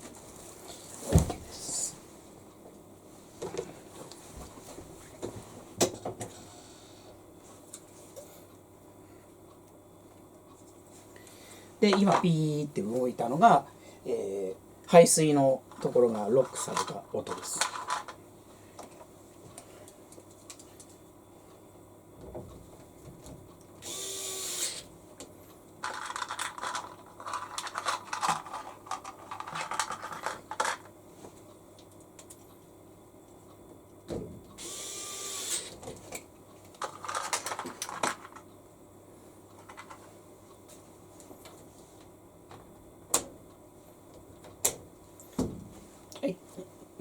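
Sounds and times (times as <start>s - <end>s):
plastic clicks and rattles: 25.8s - 30.9s, 36.7s - 38.5s.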